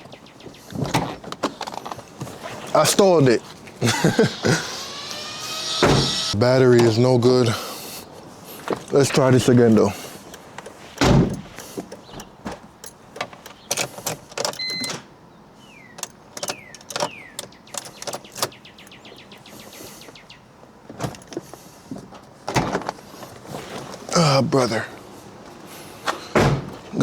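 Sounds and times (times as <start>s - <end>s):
starter solenoid clicking rapidly: 3.8s - 6.4s
loud thump: 4.4s - 6.3s.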